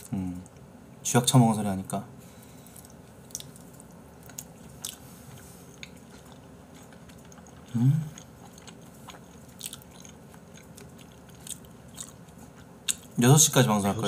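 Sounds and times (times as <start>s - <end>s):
person chewing with wet mouth sounds: 2.6s - 13.2s.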